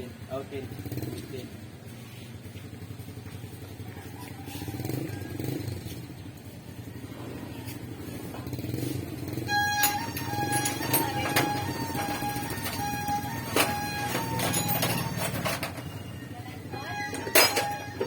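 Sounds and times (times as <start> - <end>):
small engine humming: 0.8 - 18.0.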